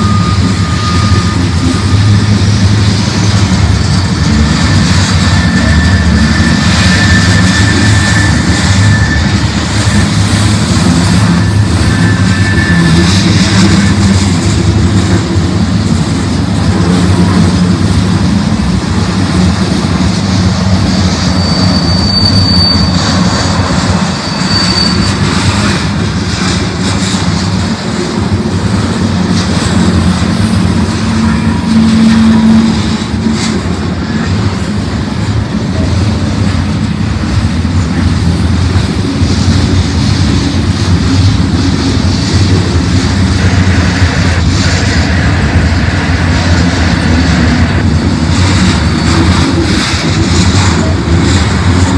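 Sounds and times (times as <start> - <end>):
brief high squeals: 0.0 - 2.0, 4.8 - 14.0, 20.9 - 25.9
locomotive engine drone: 0.0 - 51.9.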